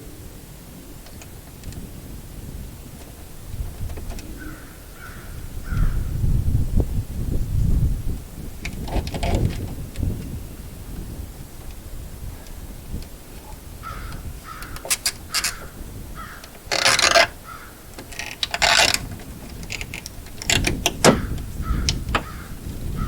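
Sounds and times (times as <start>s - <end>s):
bird calls: 4.2s - 6.2s, 13.3s - 16.7s, 17.4s - 17.9s, 21.1s - 23.0s
sharp clicks: 14.1s - 15.7s, 16.4s - 22.3s
scraping bursts: 14.4s - 15.7s, 16.4s - 22.3s.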